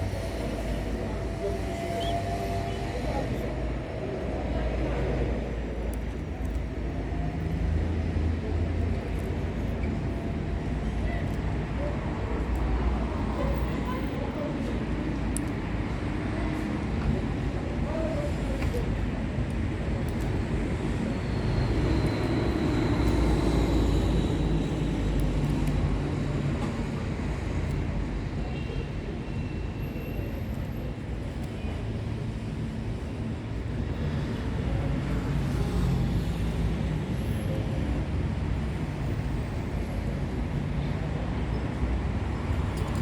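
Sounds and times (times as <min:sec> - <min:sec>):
low rumble of background noise: 0:00.0 - 0:43.0.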